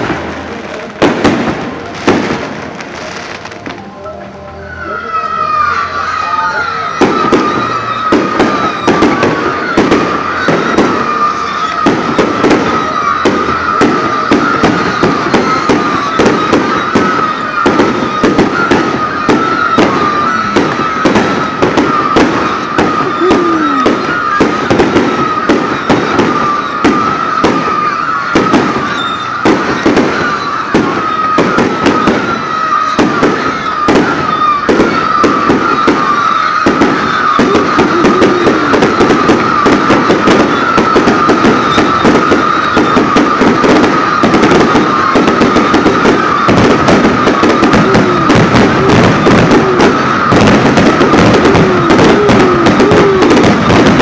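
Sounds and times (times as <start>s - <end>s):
fireworks popping and crackling: 0.0s - 4.2s, 5.6s - 54.0s
wavering high tone: 3.0s - 6.9s.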